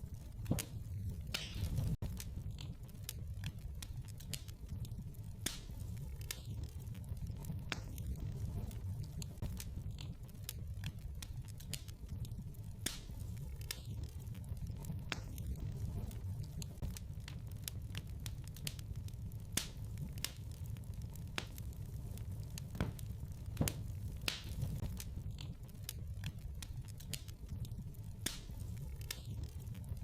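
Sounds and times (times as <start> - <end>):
low fire rumble: 0.0 - 30.0
wood fire crackling and popping: 0.0 - 30.0.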